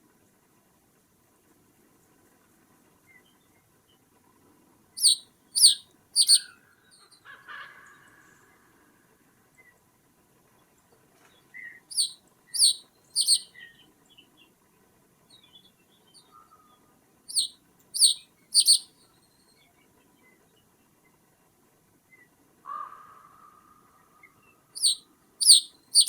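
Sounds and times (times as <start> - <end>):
soft bird chirps: 5.0 - 6.6, 11.6 - 13.8, 17.3 - 19.4, 24.8 - 26.0.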